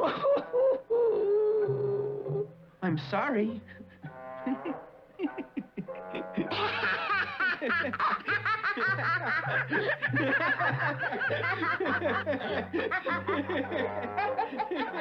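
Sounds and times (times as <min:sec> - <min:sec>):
people laughing hard: 0:00.0 - 0:01.4, 0:03.7 - 0:15.0
low background music: 0:00.0 - 0:15.0.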